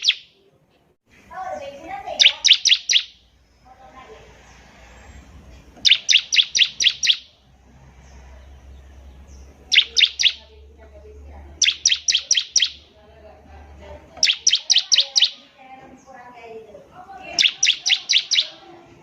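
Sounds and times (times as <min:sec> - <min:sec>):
bird singing rapid sharp chirps: 0:00.0 - 0:00.4, 0:02.1 - 0:03.7, 0:05.8 - 0:07.4, 0:08.2 - 0:10.7, 0:11.6 - 0:13.0, 0:14.2 - 0:15.6, 0:17.2 - 0:18.7.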